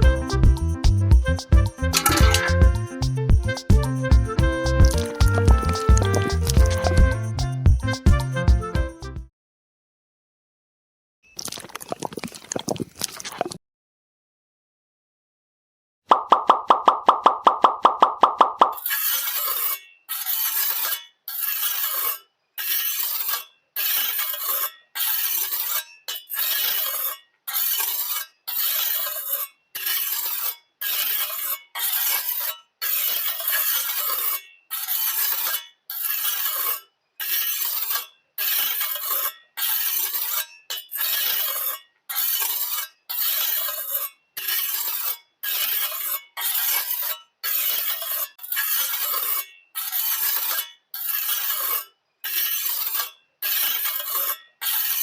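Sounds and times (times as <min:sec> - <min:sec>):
rough scraping strokes: 0:01.5 - 0:07.6, 0:18.8 - 0:55.0.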